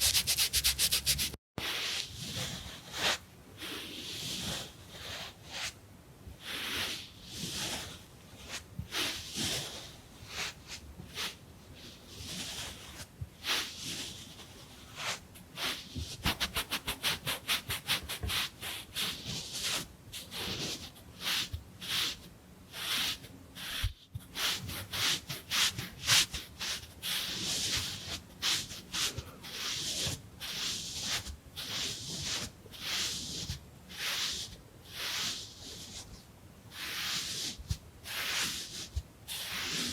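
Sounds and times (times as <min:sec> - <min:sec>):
wiping and rubbing strokes: 0:00.0 - 0:05.8, 0:06.4 - 0:39.9.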